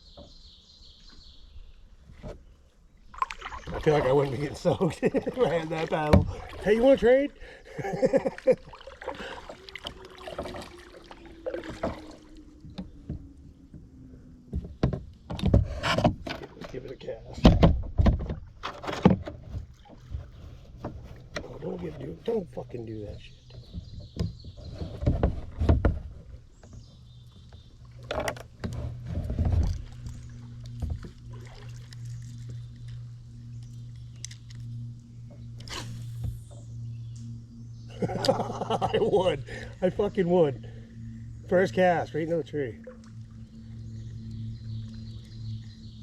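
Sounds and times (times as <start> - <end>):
faint steady hum: 0.0 - 46.0
paddle strokes dripping water: 2.6 - 17.2, 18.2 - 46.0
paddle knocking against kayak: 3.2 - 7.2, 7.9 - 16.8, 17.4 - 22.6, 23.4 - 31.9
paddle knocking on plastic hull: 5.2 - 6.9, 14.5 - 16.6, 23.6 - 26.9.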